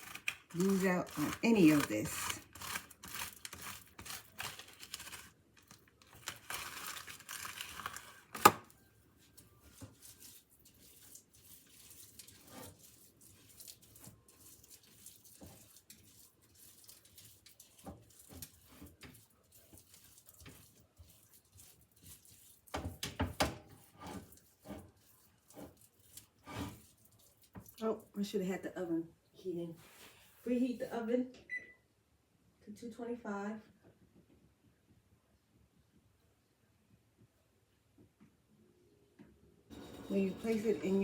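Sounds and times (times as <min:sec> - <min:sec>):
rustling and crinkling: 0:00.0 - 0:28.3, 0:29.5 - 0:31.0.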